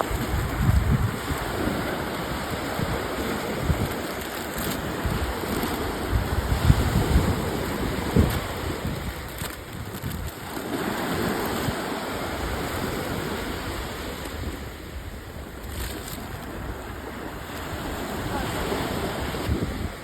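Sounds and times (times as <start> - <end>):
sea waves washing: 0.0 - 20.0
wind buffeting microphone: 0.0 - 20.0.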